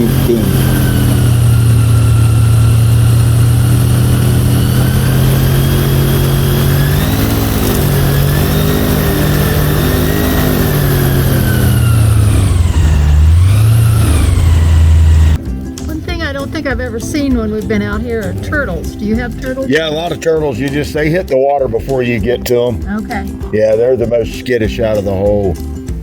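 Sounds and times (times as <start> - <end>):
airboat engine drone: 0.0 - 20.2.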